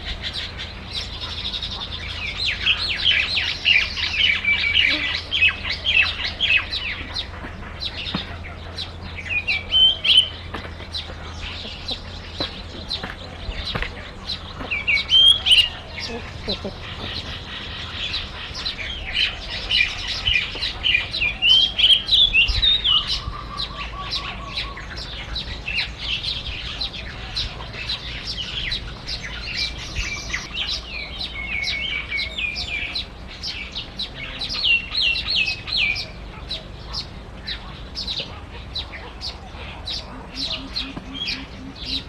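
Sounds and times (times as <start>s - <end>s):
small birds chirping and twittering: 0.0s - 42.0s.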